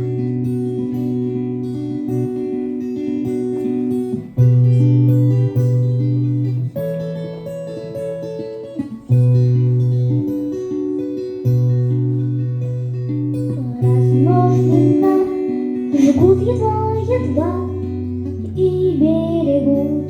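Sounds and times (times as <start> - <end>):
acoustic guitar chords: 0.0 - 20.0
person singing: 13.3 - 20.0.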